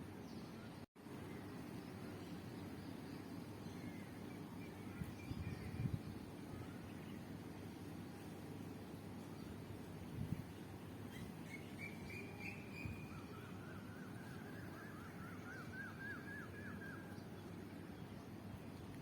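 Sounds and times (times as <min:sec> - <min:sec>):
low background noise: 0:00.0 - 0:19.0
bird calling: 0:11.1 - 0:17.4.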